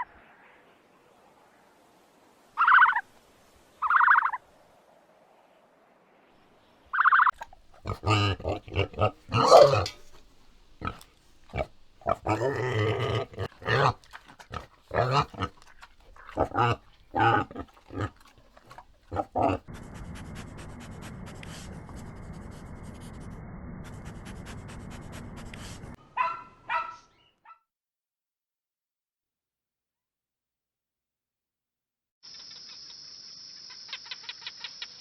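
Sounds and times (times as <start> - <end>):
animal short repeated calls: 7.0 - 19.7.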